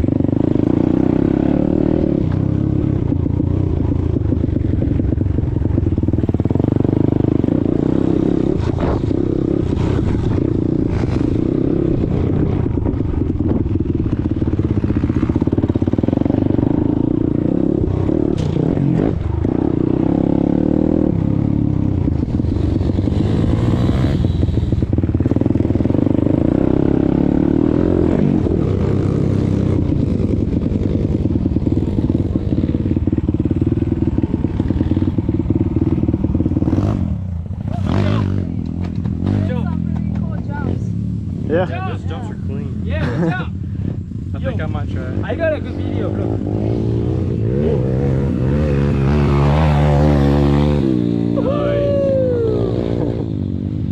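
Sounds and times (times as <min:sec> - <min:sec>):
motorbike engine revving: 0:00.0 - 0:53.9
light clatter from bike: 0:18.3 - 0:18.6, 0:38.6 - 0:40.5.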